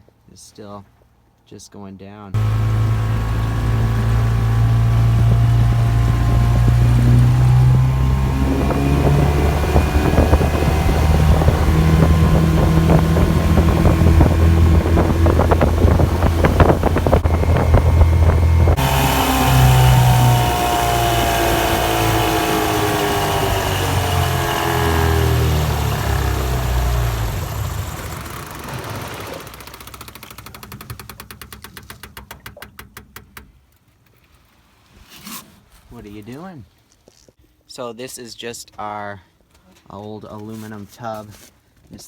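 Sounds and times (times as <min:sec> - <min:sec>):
outboard motor running: 0:02.4 - 0:32.9
wind on the microphone: 0:04.9 - 0:18.8.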